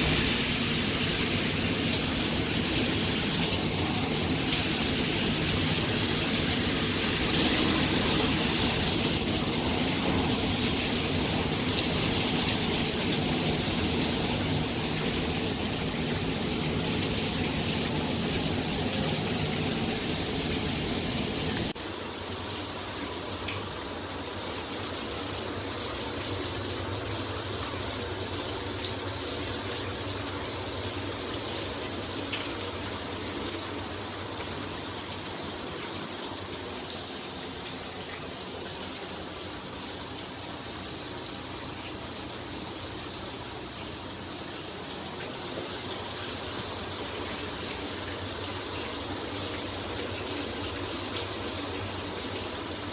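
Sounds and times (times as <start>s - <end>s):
shower head spraying water: 0.0s - 21.8s.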